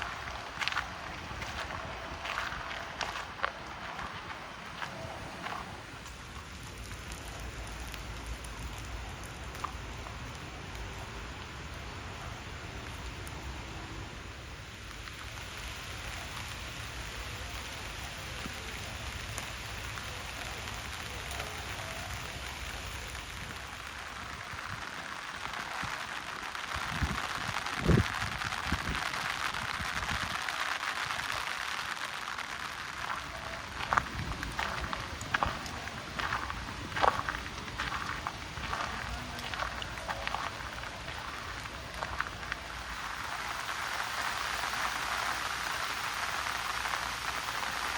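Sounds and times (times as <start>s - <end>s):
steady rain falling: 0.0s - 47.9s
single raindrops: 14.8s - 47.9s.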